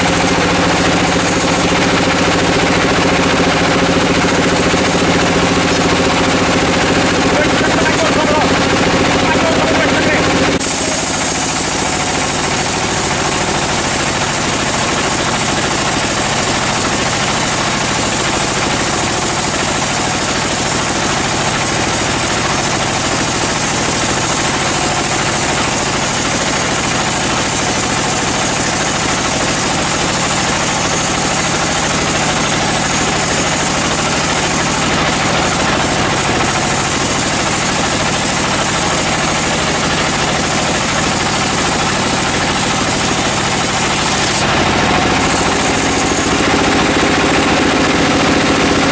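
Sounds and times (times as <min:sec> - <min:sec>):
sawmill machinery drone: 0:00.0 - 0:48.9
loud bright hiss: 0:10.6 - 0:46.6.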